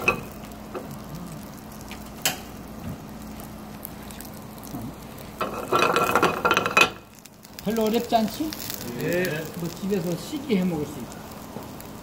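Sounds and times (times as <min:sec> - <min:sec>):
bread sizzling in a frying pan: 0:00.0 - 0:12.0
steady low hum: 0:00.0 - 0:12.0.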